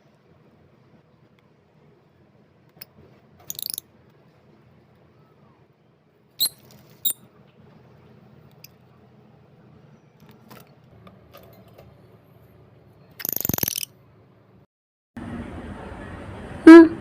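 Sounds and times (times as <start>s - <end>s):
bird squeaky chirps: 3.5s - 3.8s, 6.4s - 7.2s, 13.2s - 13.9s.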